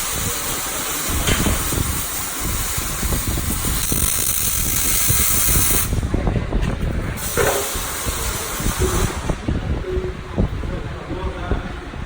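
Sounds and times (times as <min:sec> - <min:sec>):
welding arc hissing and crackling: 0:00.0 - 0:06.0, 0:07.2 - 0:09.4.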